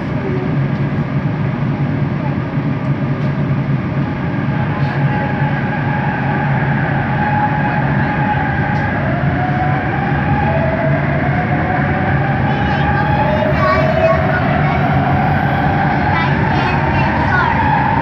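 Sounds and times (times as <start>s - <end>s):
train running noise: 0.0s - 18.0s.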